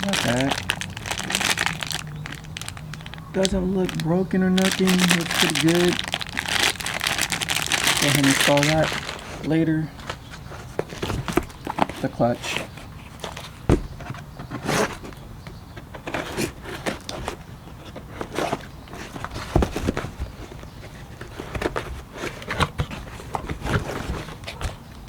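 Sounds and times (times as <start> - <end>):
wrapping rustling: 0.0 - 13.8
knocks and scrapes of handling: 0.0 - 24.9.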